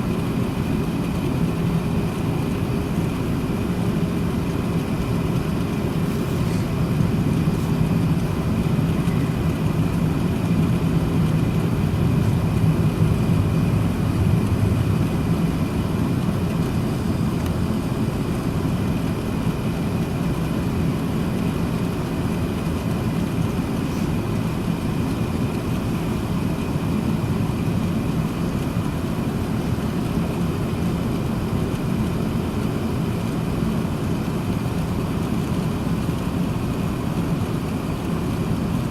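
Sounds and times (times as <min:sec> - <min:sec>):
aircraft cabin engine drone: 0:00.0 - 0:38.9
faint high whine: 0:06.0 - 0:11.6.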